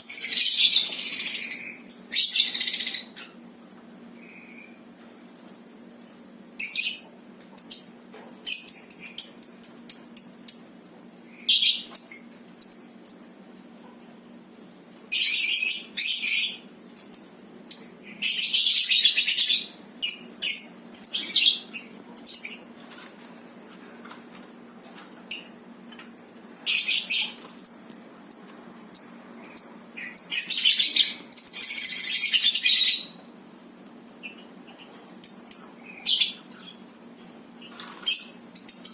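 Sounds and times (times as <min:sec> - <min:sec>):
lovebirds chirping and screeching: 0:00.0 - 0:03.4, 0:15.1 - 0:22.7, 0:26.6 - 0:33.2, 0:34.2 - 0:36.8.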